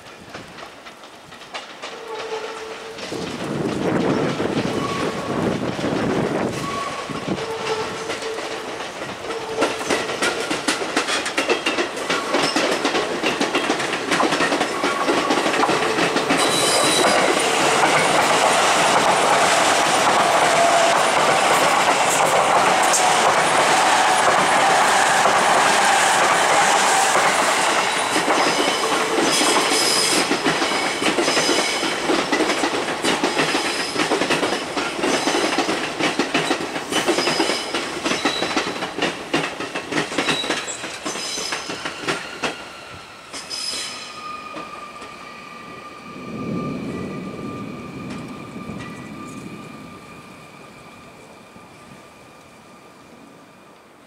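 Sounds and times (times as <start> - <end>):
train wheels clattering: 0.0 - 50.8
high-pitched wheel squeal: 40.3 - 51.2.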